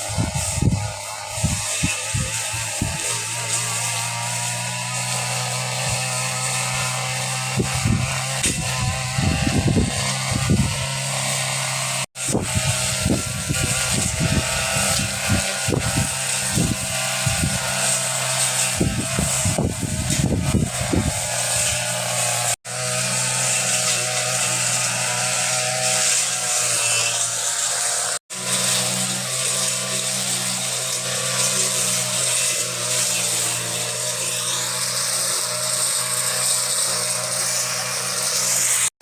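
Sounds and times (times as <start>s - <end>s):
brush cutter engine running: 0.0s - 39.0s.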